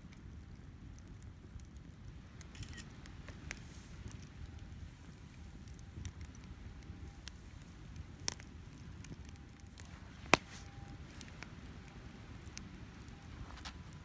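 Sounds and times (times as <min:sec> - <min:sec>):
firewood crackling in campfire: 0:00.0 - 0:14.0.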